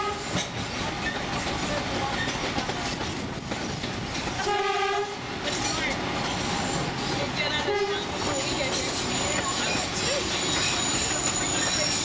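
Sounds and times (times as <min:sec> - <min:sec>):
train horn: 0:00.0 - 0:00.4, 0:04.4 - 0:05.2, 0:07.6 - 0:08.1
train wheels rumbling on track: 0:00.0 - 0:12.0.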